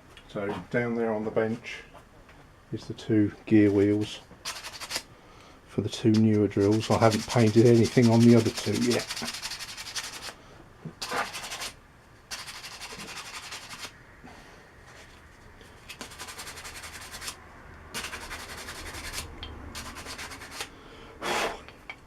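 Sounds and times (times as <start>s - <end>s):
hand sanding strokes: 6.1s - 10.4s, 11.0s - 13.9s, 15.8s - 17.4s, 18.0s - 20.7s.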